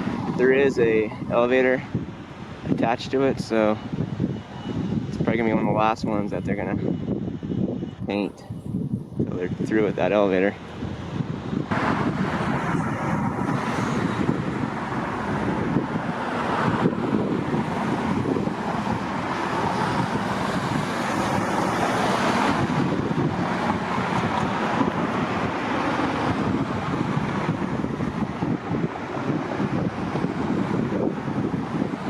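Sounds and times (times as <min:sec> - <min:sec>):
road traffic: 0:00.0 - 0:32.0
wind buffeting microphone: 0:00.0 - 0:32.0.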